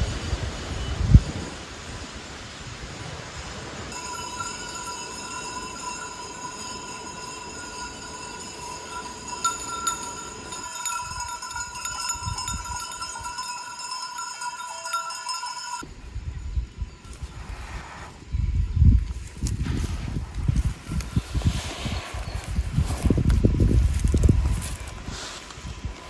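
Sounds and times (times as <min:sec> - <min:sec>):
sheep bells jangling: 0:03.9 - 0:15.9, 0:19.0 - 0:25.4.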